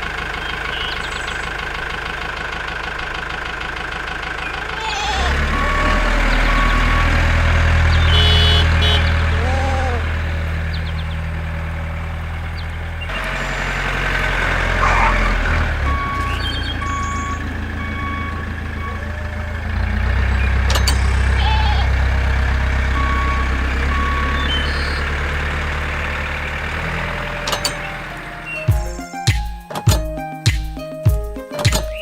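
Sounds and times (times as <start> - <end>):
vehicle engine running: 0.0 - 30.2
reversing alarm beeping: 4.4 - 9.3, 13.1 - 26.1, 26.9 - 29.0.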